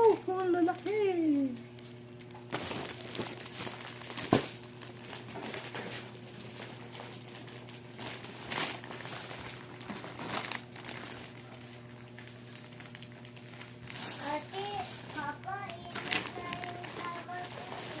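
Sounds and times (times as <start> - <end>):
packaging crinkling: 0.0 - 18.0
child's voice: 14.2 - 18.0.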